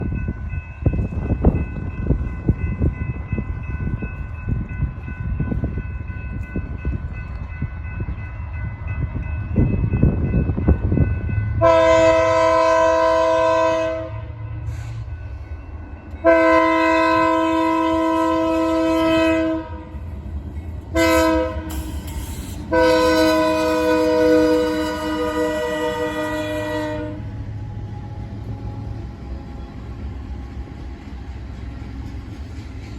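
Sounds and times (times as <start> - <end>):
train wheels rumbling on rails: 0.0 - 32.9
locomotive air horn blasts: 11.6 - 15.0, 16.2 - 19.9, 20.9 - 27.3.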